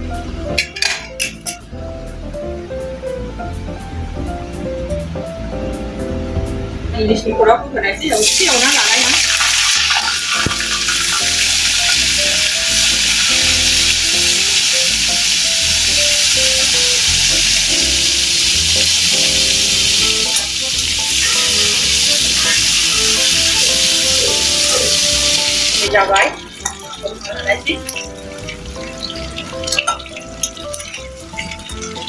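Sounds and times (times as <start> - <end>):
simple background music: 0.0 - 32.0
fish head sizzling in oil: 8.1 - 32.0.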